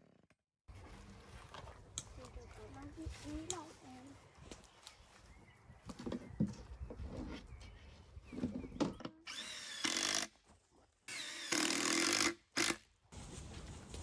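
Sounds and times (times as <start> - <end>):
cordless drill driving screws: 9.2 - 10.3, 11.1 - 12.8.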